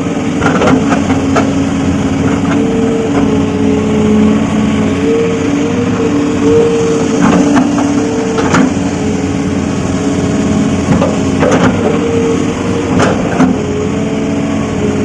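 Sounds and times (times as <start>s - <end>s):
excavator diesel engine: 0.0s - 15.0s
excavator knocking ground: 0.3s - 4.2s, 4.9s - 9.4s, 10.7s - 13.9s.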